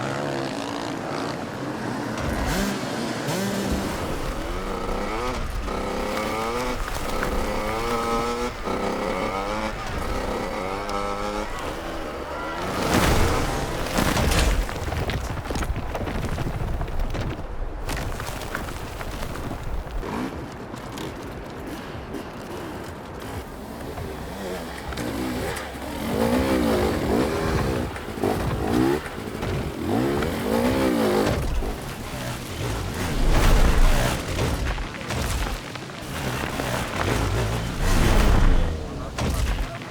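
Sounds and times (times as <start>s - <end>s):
motorcycle engine accelerating: 0.0s - 14.1s, 23.2s - 35.4s, 36.0s - 39.8s.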